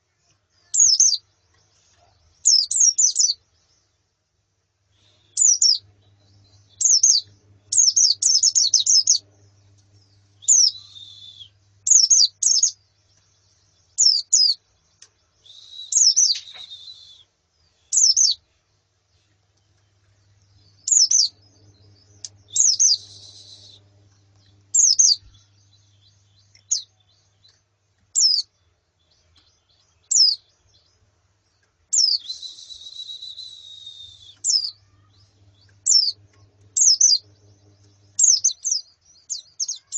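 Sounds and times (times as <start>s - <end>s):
birds chirping: 0.0s - 39.9s
buzzy bird trills: 5.0s - 12.8s, 20.6s - 26.9s, 32.0s - 39.9s.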